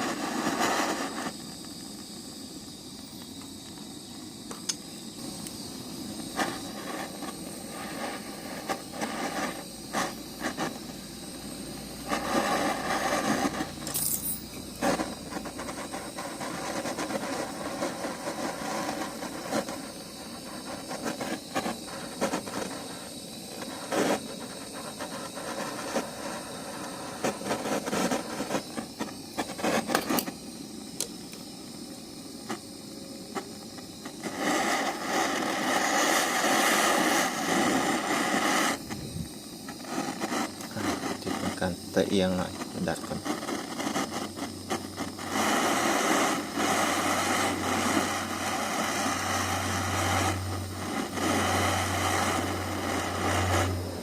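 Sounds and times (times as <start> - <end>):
gas torch flame hissing: 0.0 - 54.0
metal tools clinking: 13.8 - 14.6.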